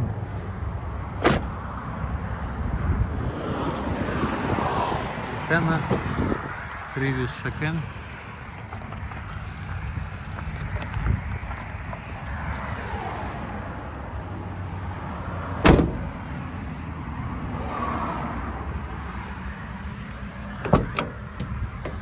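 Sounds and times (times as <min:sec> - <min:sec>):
steady low rumble: 0:00.0 - 0:12.7
vehicle door slamming: 0:01.1 - 0:01.6, 0:15.5 - 0:16.4, 0:20.5 - 0:22.0.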